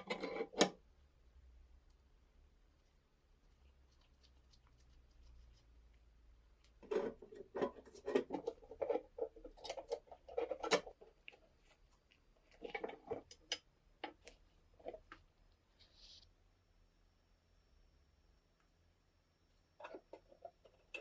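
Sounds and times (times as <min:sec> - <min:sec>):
hard parts knocking and scraping: 0:00.0 - 0:00.8, 0:06.8 - 0:11.0.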